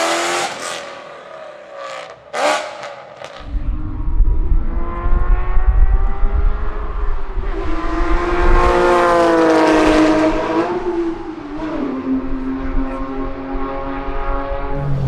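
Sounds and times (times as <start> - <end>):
car engine at high revs: 0.0 - 1.0, 4.6 - 15.0.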